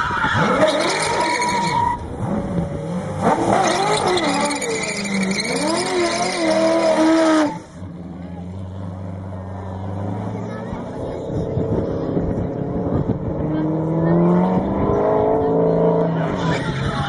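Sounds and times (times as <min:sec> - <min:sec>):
car tyres squealing: 0:00.0 - 0:07.8.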